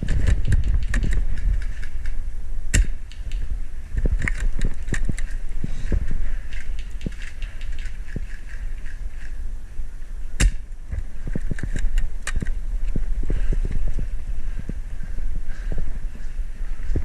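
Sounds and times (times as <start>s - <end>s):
sharp crack: 0.0s - 5.4s, 10.4s - 10.8s
wind rumble on microphone: 0.0s - 17.0s
soft low thumps: 7.9s - 17.0s.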